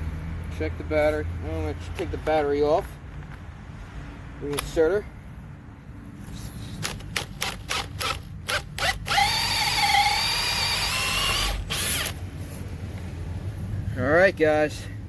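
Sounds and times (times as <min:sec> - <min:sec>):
sharp clicks: 0:06.8 - 0:12.2
drill whining: 0:06.9 - 0:12.2.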